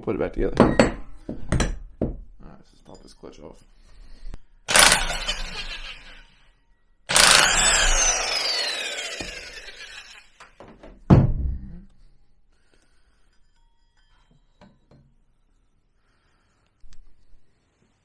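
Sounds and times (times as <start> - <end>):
impact wrench bursts: 4.7 - 6.3, 7.1 - 10.4.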